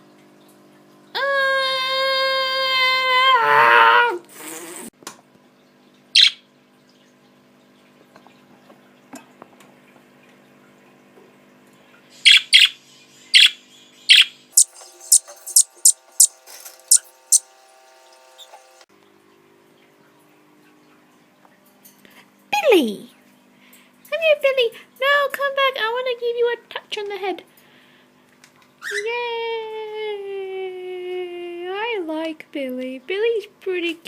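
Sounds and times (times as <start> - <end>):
budgie chirping: 14.6 - 18.8
faint hum: 14.6 - 18.9.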